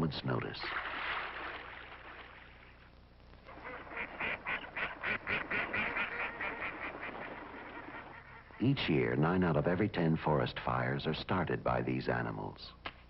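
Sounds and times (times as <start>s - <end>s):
waterfowl honking: 3.5s - 8.8s.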